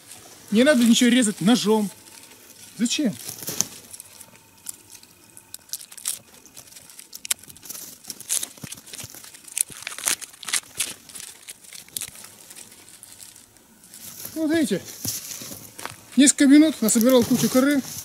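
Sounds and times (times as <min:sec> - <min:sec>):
bark being peeled and crackling: 0:00.0 - 0:18.0.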